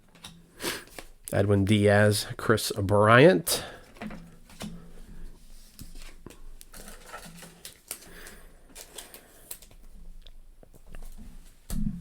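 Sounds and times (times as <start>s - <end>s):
cards flipped through by hand: 0.6s - 1.1s, 5.6s - 9.9s.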